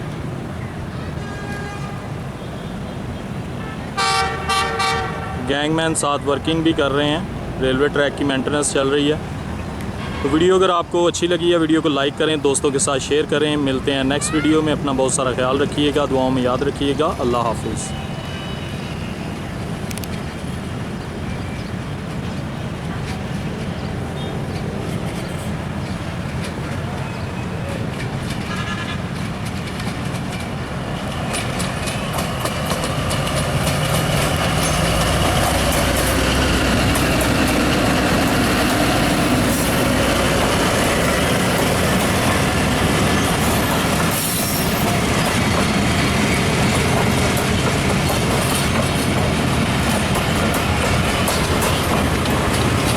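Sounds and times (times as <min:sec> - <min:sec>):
train wheels on rails: 0:11.0 - 0:52.9.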